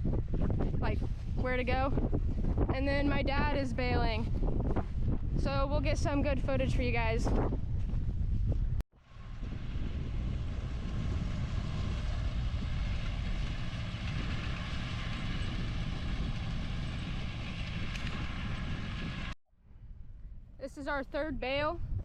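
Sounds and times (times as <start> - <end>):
tractor running: 9.0 - 19.4.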